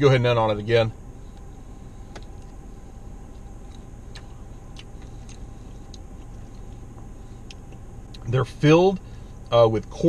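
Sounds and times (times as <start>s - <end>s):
steady low hum: 0.0s - 10.0s
crunchy chewing: 3.3s - 8.3s.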